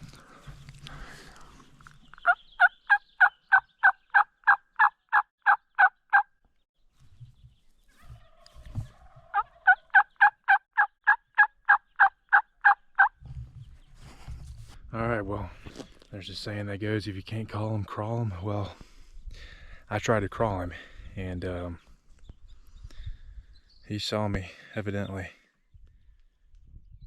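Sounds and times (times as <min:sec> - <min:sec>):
turkey yelping: 0:02.2 - 0:06.3, 0:07.9 - 0:13.1.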